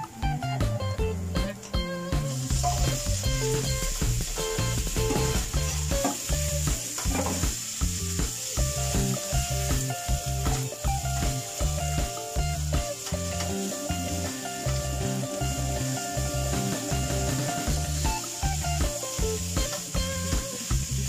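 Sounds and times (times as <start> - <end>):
background music with steady beat: 0.0 - 21.0
meat sizzling in a frying pan: 0.0 - 21.0.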